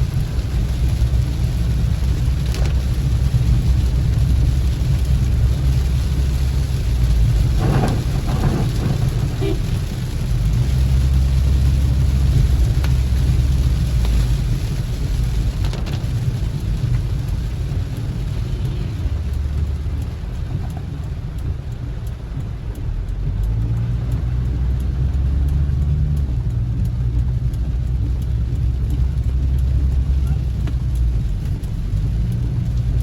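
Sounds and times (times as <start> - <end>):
heavy rain falling: 0.0 - 33.0
steady low rumble: 0.0 - 33.0
faint ticks of drops: 15.6 - 33.0.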